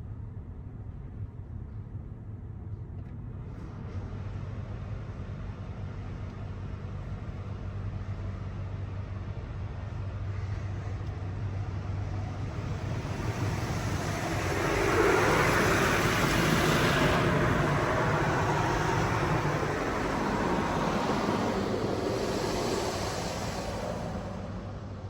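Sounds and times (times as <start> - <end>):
steady low hum: 8.9 - 25.0
car wash water spray hissing: 12.0 - 25.0.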